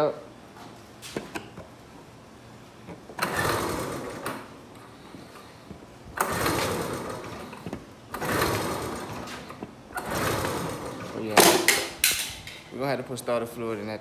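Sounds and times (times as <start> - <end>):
engine cranking without starting: 3.0 - 12.6.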